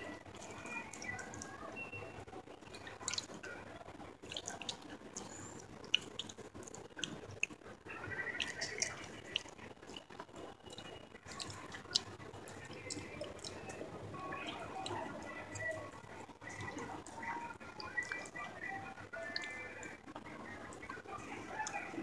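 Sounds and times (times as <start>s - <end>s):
wet lip and tongue clicks: 2.6s - 3.6s, 4.2s - 18.6s
person chewing: 4.2s - 18.4s.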